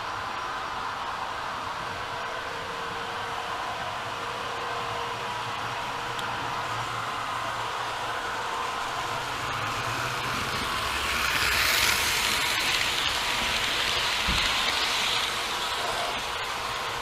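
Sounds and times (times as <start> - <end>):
model train rolling on track: 0.0 - 17.0.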